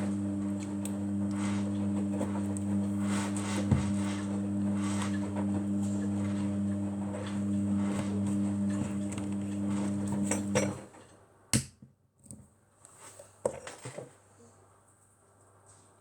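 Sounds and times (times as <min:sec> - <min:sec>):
kitchenware clinking: 0:10.2 - 0:10.9
small knocks and clatters: 0:13.1 - 0:14.2.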